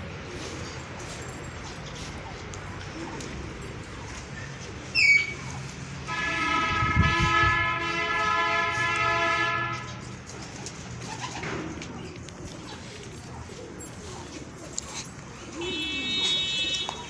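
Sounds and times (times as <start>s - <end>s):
horn blast: 6.0s - 10.0s.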